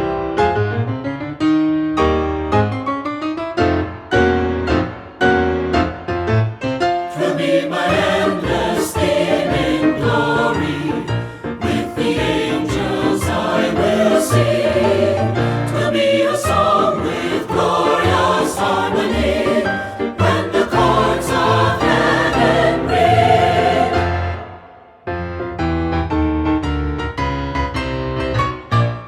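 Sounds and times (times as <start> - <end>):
choir singing worship song: 7.1 - 25.0.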